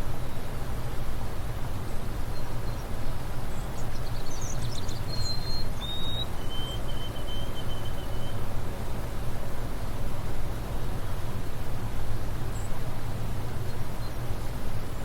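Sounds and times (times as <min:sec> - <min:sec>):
bird chirping and whistling: 0:05.2 - 0:08.3.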